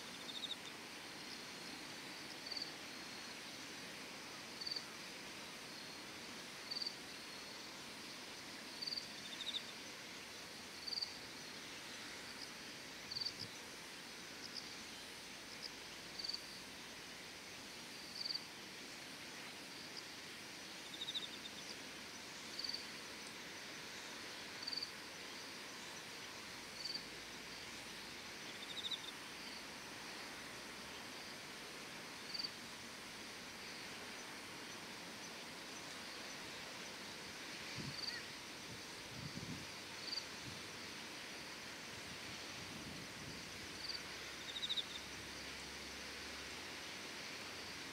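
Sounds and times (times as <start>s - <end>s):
insect high chirp: 0.0s - 3.7s, 4.5s - 46.5s
faint steady hiss: 0.0s - 47.9s.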